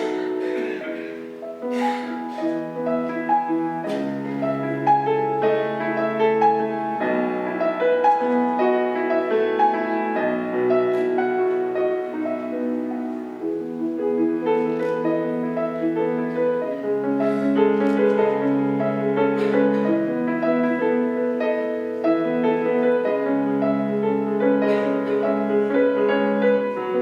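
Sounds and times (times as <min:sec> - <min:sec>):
solo piano: 0:00.0 - 0:27.0.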